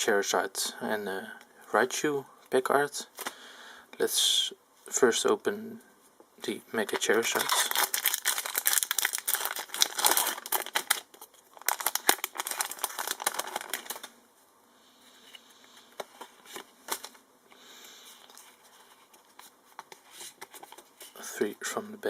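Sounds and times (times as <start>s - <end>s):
foil wrapper crinkling and tearing: 7.0s - 14.1s.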